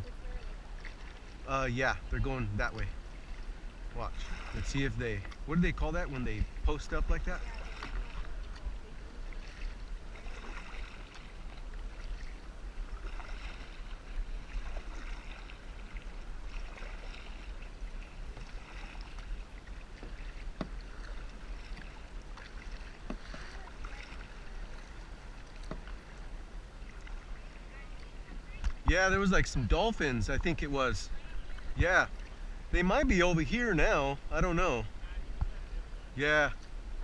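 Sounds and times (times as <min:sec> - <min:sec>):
water splashing against kayak: 0:00.0 - 0:37.0.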